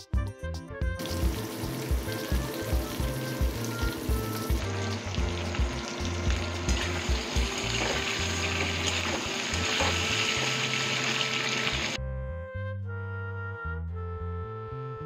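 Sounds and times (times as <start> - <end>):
vegetables sizzling in oil: 1.0 - 12.0.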